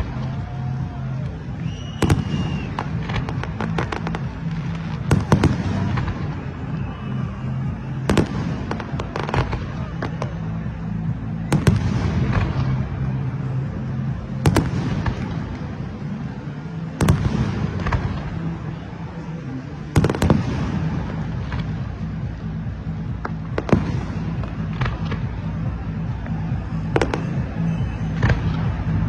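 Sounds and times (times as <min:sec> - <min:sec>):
small firework cracks: 0:00.0 - 0:07.2
fireworks bangs: 0:00.0 - 0:18.8, 0:19.9 - 0:29.0.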